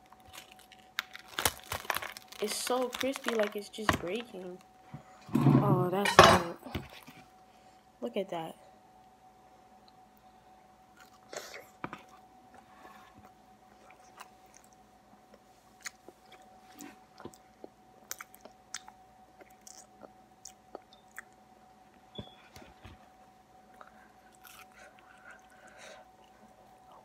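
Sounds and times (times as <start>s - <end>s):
crunchy chewing: 0.0s - 3.6s, 11.0s - 21.4s, 23.7s - 27.0s
faint steady hum: 0.0s - 27.0s.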